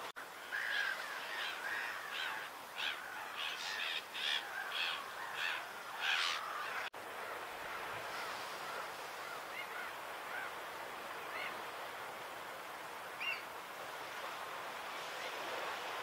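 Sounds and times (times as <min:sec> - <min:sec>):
bird calling: 0:00.4 - 0:06.9, 0:13.2 - 0:13.5.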